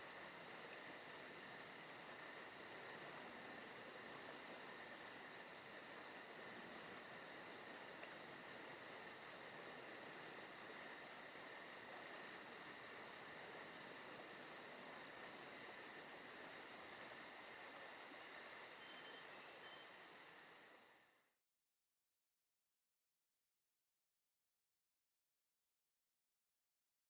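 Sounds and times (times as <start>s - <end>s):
crickets and insects chirping: 0.0s - 21.3s.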